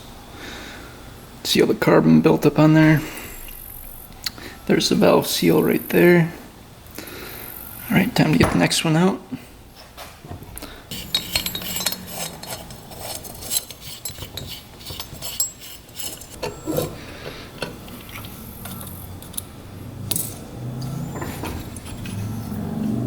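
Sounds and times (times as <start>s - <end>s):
metal tools clicking and scraping: 10.9s - 19.5s, 20.1s - 22.6s.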